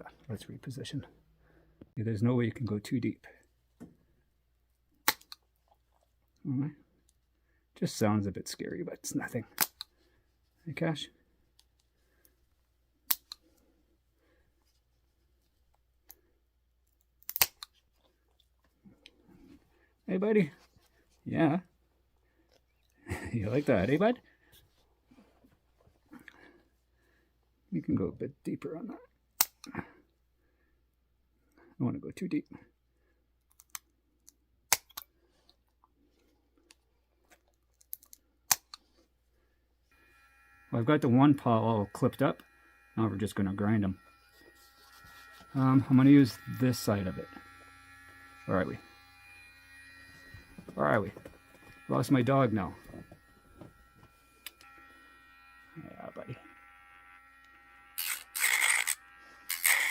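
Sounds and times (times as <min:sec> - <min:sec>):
nail clipper snipping claw: 0:05.0 - 0:05.4, 0:09.6 - 0:09.9, 0:13.1 - 0:13.4, 0:17.2 - 0:17.7, 0:29.4 - 0:29.7, 0:34.7 - 0:35.1, 0:37.8 - 0:38.8, 0:58.0 - 0:59.9
nail clippers clicking: 0:17.2 - 0:17.7, 0:57.4 - 0:59.9.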